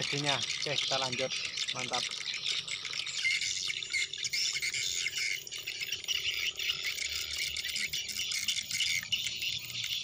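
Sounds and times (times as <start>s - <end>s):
drizzle pattering: 0.0s - 4.4s.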